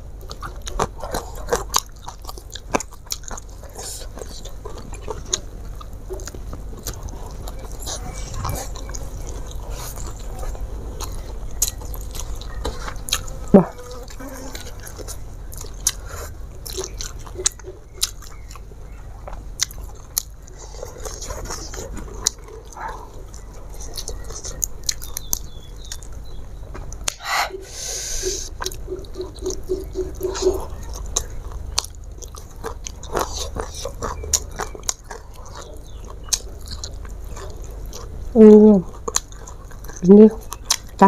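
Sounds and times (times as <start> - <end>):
person chewing food: 0.0 - 41.0.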